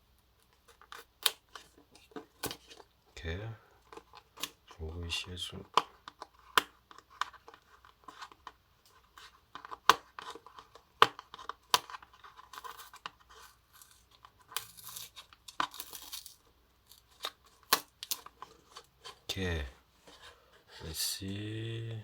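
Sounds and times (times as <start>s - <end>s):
fingers scratching packaging: 5.6s - 19.3s.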